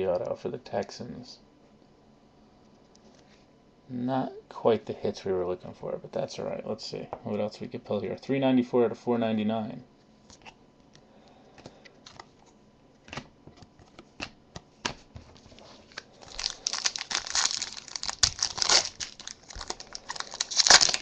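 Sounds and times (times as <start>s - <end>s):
cards being handled: 11.6s - 21.0s
wrapper tearing and crinkling: 15.8s - 21.0s.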